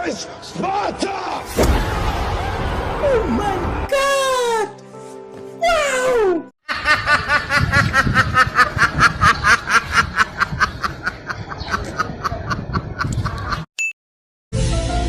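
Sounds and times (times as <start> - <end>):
rhythmic snickering laughter: 6.7 - 13.7.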